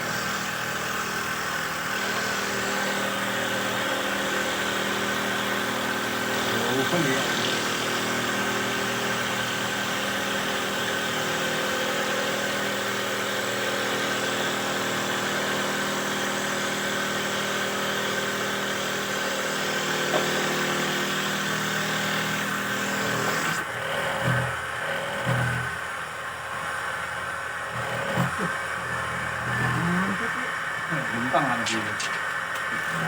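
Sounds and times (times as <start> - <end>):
machine motor humming: 0.0 - 11.1, 26.6 - 33.0.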